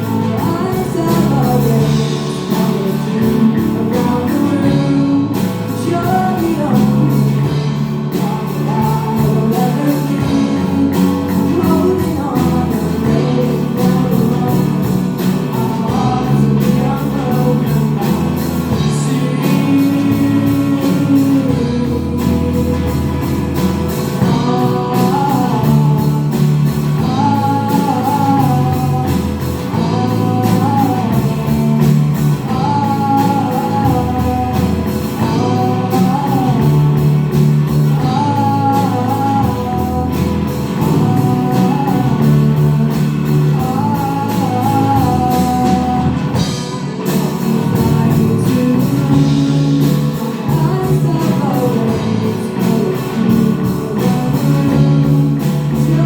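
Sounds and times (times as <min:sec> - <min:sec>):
bass guitar: 0:00.0 - 0:56.0
drums with steady beat: 0:00.0 - 0:56.0
electric guitars: 0:00.0 - 0:56.0
man singing lead vocal: 0:00.0 - 0:56.0.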